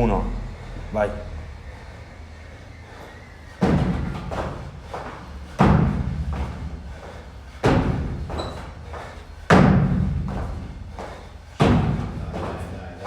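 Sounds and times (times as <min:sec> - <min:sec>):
heavy thuds on gym floor: 0:03.6 - 0:06.8, 0:07.6 - 0:12.9.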